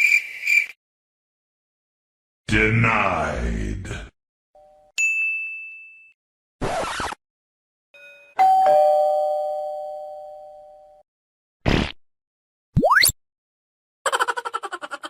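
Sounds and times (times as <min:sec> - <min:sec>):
high bell ding: 0:05.0 - 0:06.2, 0:08.0 - 0:11.0
two-note doorbell chime: 0:08.0 - 0:11.0.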